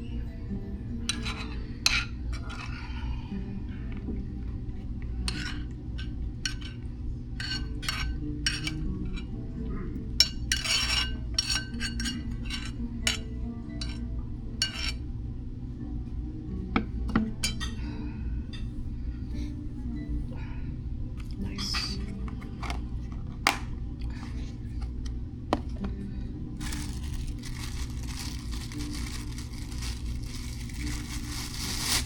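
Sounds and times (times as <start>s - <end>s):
low background hum: 0.0s - 32.0s
cutlery and dishes clinking: 1.1s - 2.8s, 10.2s - 14.0s.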